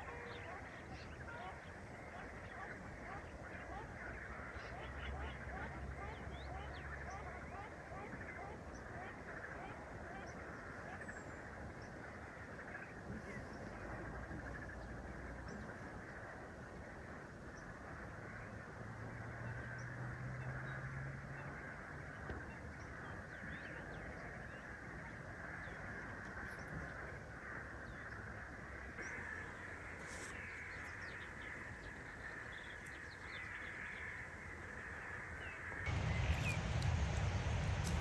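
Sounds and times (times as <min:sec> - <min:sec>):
faint bird calls: 0:00.0 - 0:36.6
steady background hiss: 0:35.2 - 0:38.0
low rushing noise: 0:35.8 - 0:38.0.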